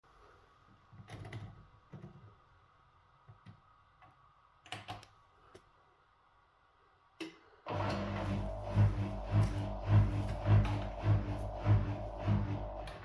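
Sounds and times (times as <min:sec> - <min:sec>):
washing machine humming: 0:07.7 - 0:13.0.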